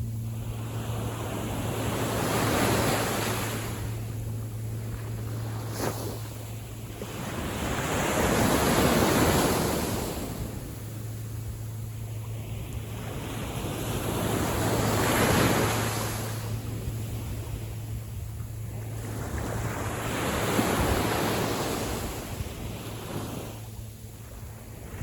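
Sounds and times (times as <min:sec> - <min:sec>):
wind rumbling on microphone: 0:00.0 - 0:25.0
small sea waves washing in: 0:00.2 - 0:25.0.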